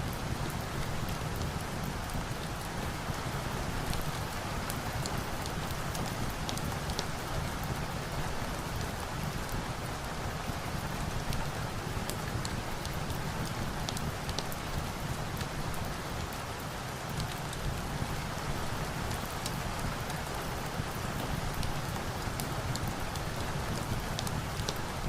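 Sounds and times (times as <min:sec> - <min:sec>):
steady heavy rain: 0:00.0 - 0:25.0
crackling fireplace: 0:00.2 - 0:07.5, 0:12.0 - 0:15.9, 0:17.1 - 0:25.0.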